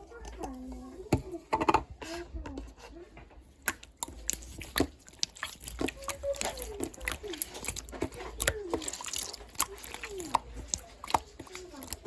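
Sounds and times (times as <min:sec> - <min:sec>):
slime squished by hand: 0:03.5 - 0:12.0.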